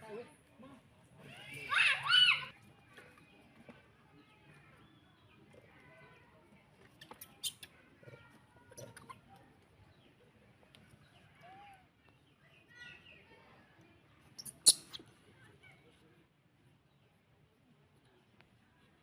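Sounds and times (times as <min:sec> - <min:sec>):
small animal chirps and squeaks: 0:06.9 - 0:09.4, 0:14.3 - 0:15.2.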